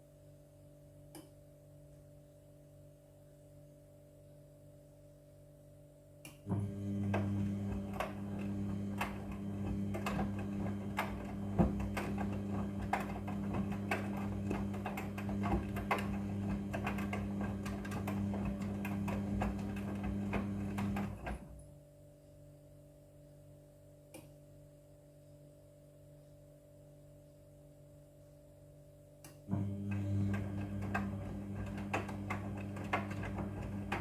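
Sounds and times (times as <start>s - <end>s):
washing machine motor humming: 6.5s - 21.6s, 29.5s - 34.0s.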